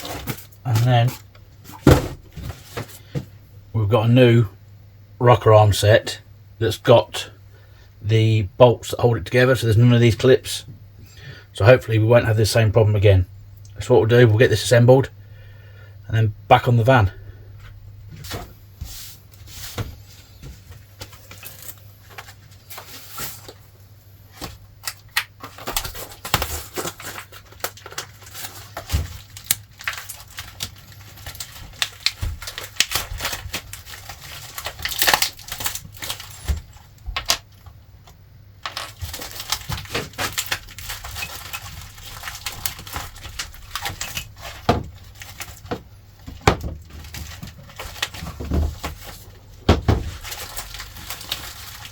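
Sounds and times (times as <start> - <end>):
steady low hum: 0.0 - 51.2
rustling: 38.6 - 51.9.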